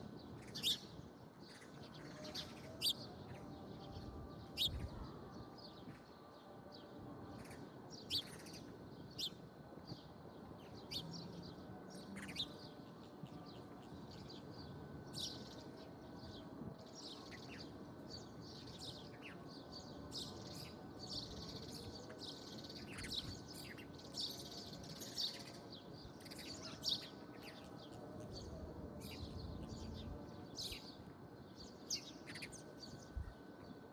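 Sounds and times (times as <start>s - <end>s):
small birds chirping: 17.0s - 33.8s.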